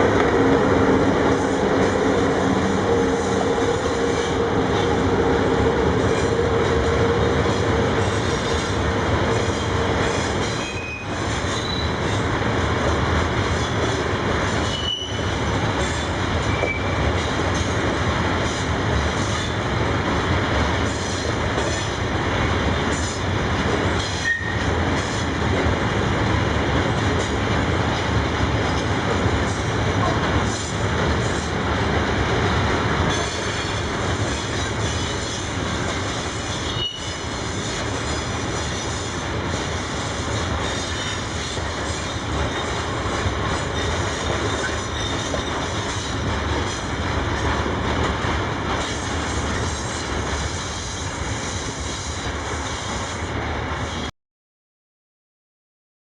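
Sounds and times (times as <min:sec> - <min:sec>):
high wheel squeals: 0:14.6 - 0:15.3, 0:36.6 - 0:37.2
freight train wagons rolling: 0:32.3 - 0:50.5.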